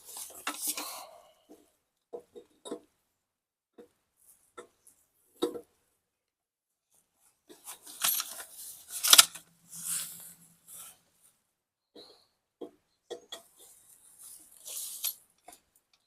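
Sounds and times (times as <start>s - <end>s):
metal clicks and scrapes: 7.5s - 10.1s.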